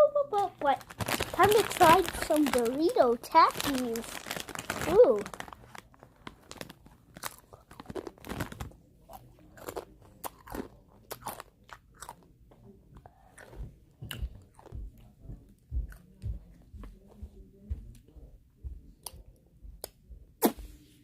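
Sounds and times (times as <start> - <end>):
person chewing crunchy chips: 0.7 - 12.3, 13.1 - 14.8.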